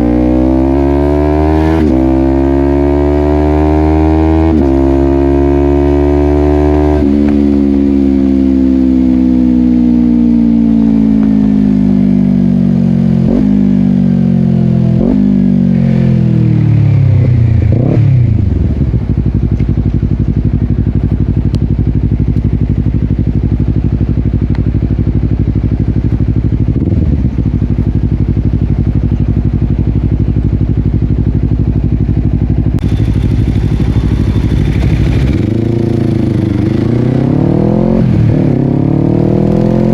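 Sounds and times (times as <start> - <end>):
motorcycle engine revving: 0.0 - 39.9
motorcycle engine idling: 18.4 - 37.5.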